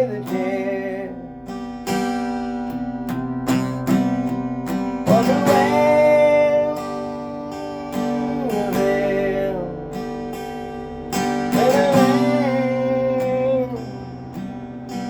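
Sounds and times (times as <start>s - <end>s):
acoustic guitar strumming: 0.0s - 15.0s
sliding guitar melody: 0.0s - 15.0s.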